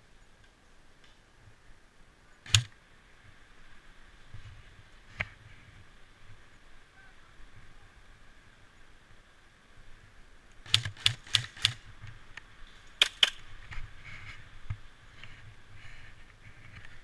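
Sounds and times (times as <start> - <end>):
airsoft gun shots: 2.5 - 2.7, 10.7 - 11.8, 13.0 - 13.4.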